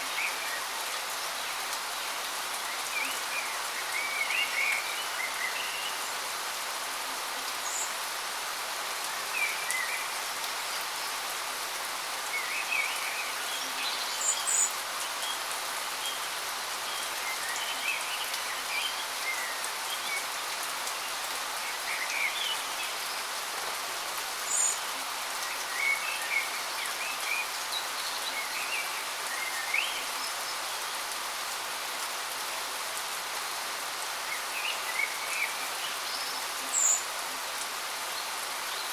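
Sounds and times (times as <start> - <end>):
small birds chirping: 24.4 - 30.7, 34.2 - 37.2.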